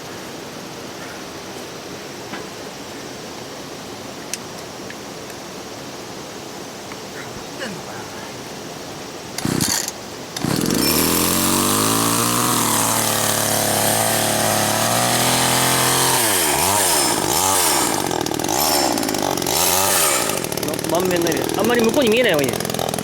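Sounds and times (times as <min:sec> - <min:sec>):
chainsaw throttle blips: 0:09.4 - 0:23.0
two-stroke chainsaw engine: 0:09.4 - 0:23.0.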